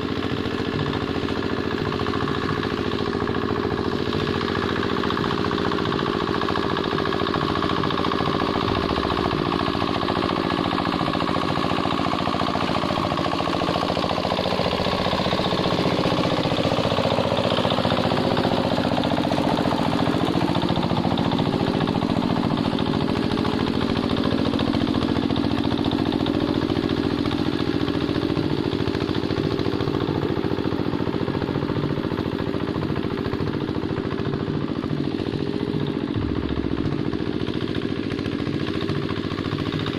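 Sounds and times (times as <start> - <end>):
hand tractor diesel engine: 0.0 - 39.9.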